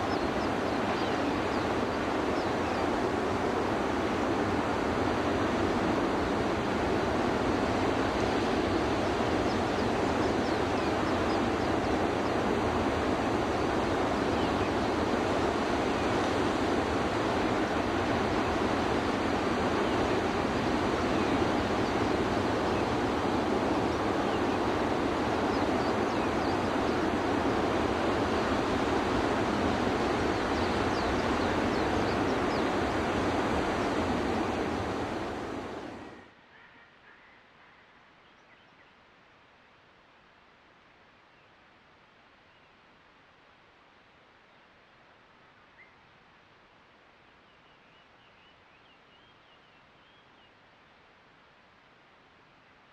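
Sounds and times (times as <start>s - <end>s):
rushing water: 0.0s - 36.2s.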